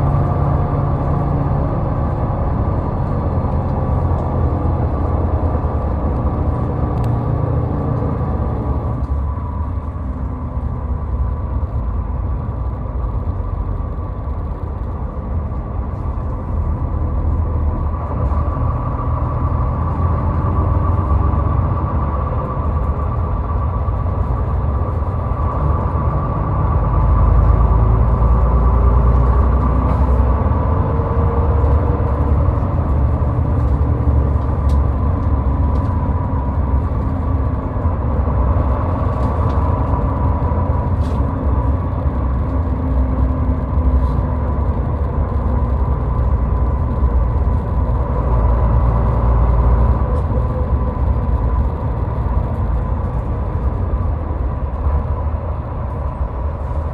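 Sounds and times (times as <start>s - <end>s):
car road noise on highway: 0.0s - 56.9s.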